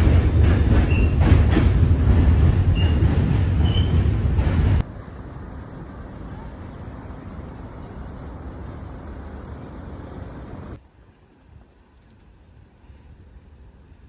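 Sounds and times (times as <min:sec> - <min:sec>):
subway train rumble: 0:00.0 - 0:11.3
road traffic noise: 0:03.8 - 0:10.8.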